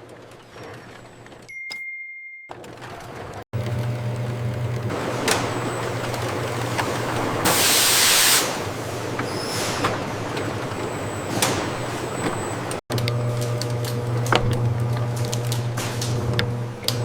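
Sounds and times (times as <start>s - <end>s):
machinery humming: 3.6s - 17.0s
loud hiss: 7.4s - 8.7s.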